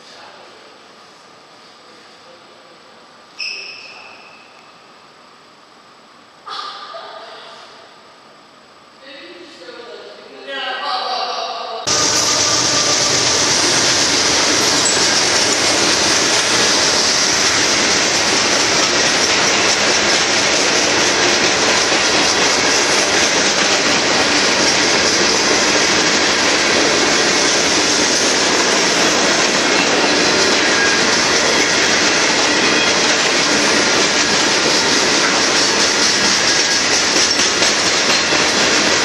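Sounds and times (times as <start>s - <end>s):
steel wheels running on rails: 11.9s - 39.0s.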